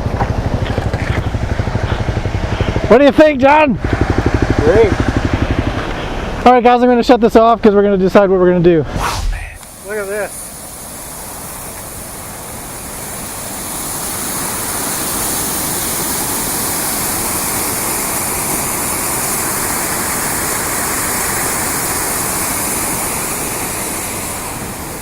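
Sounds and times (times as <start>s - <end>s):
water rushing through rapids: 9.7s - 25.0s.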